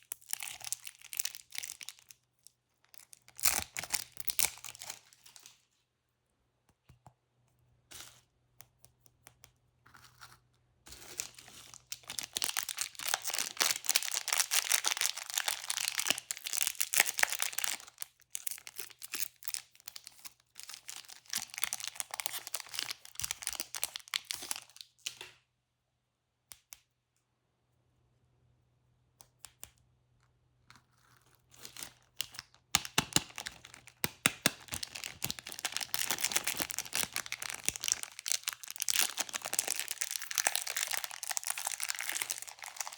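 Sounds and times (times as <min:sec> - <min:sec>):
candy wrapper crinkling: 0:00.0 - 0:05.7, 0:09.9 - 0:25.1, 0:30.8 - 0:42.9.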